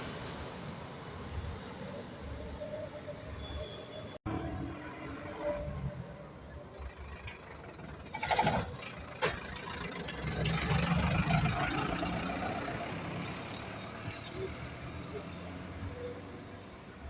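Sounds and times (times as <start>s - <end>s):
bus engine running: 5.9s - 14.5s.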